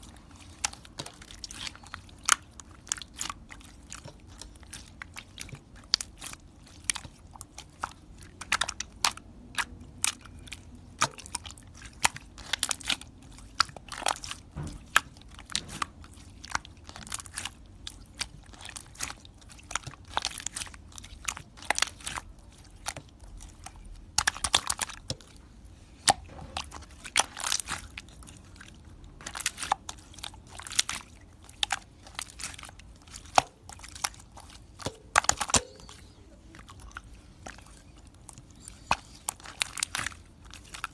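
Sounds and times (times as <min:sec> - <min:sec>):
crunchy chewing: 0:00.0 - 0:40.9.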